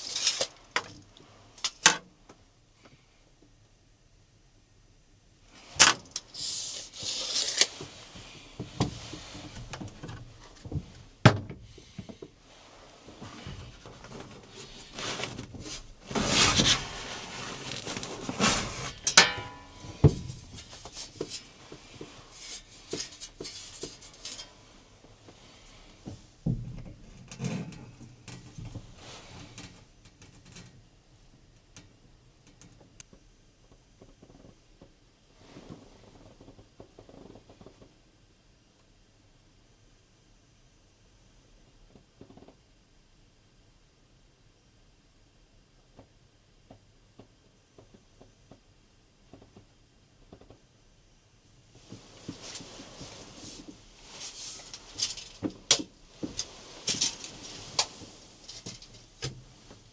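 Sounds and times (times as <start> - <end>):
rustling: 0.0 - 1.6, 5.5 - 26.4, 51.7 - 59.9.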